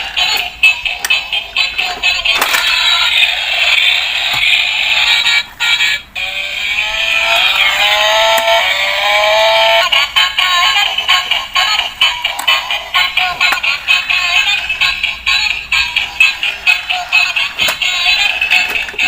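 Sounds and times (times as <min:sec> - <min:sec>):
tinny toy electronic music: 0:00.0 - 0:19.0
gliding electronic tone: 0:06.2 - 0:09.9.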